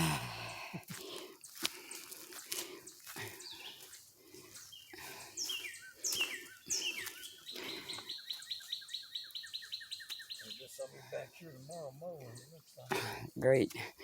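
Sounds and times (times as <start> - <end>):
birds chirping: 0.0 - 14.0
bird trilling: 4.7 - 12.8.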